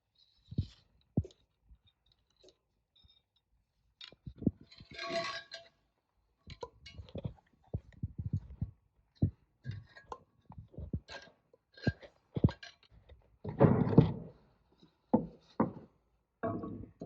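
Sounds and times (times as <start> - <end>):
metal parts knocking and clinking: 4.0 - 5.8, 16.4 - 17.0.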